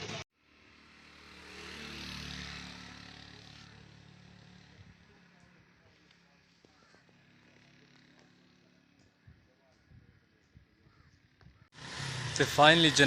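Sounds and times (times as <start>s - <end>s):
vehicle passing by: 0.4s - 5.4s, 11.8s - 13.0s.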